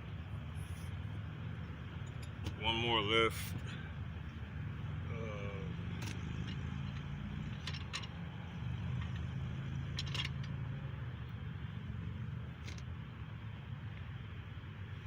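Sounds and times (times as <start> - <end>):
metal taps and clinks: 9.9 - 10.6.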